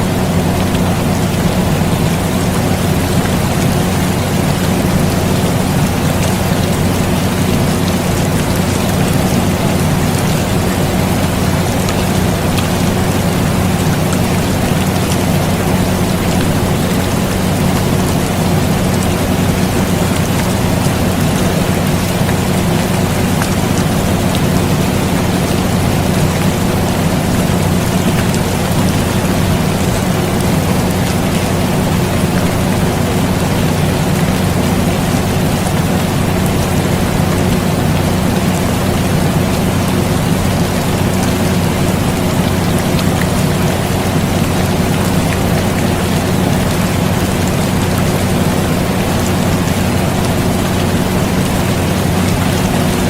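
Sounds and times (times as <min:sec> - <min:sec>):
air conditioner humming: 0:00.0 - 0:53.0
steady rain falling: 0:00.0 - 0:53.0.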